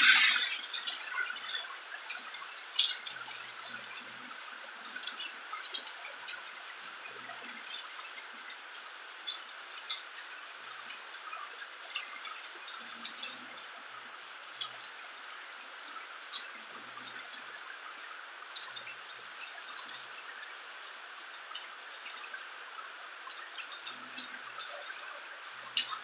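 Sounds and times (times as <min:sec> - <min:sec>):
rain hissing: 0:00.0 - 0:01.2
drops ticking and dripping: 0:00.0 - 0:26.0.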